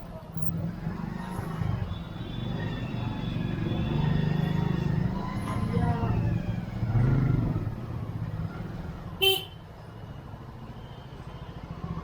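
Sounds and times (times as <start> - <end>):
traffic engine rumble: 0.0 - 10.7
vehicle horn toot: 9.2 - 9.6.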